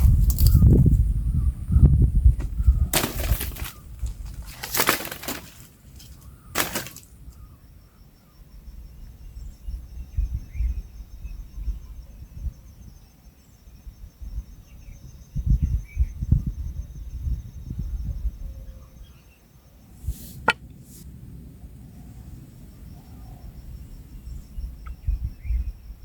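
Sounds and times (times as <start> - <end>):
crunching rustling of brush: 0.0 - 1.0, 2.2 - 7.5
crickets trilling: 0.0 - 26.0.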